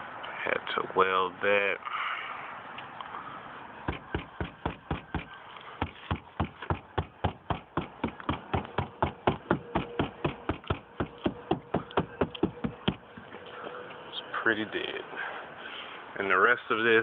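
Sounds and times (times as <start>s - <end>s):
dull knocking on car body panel: 3.9s - 13.3s.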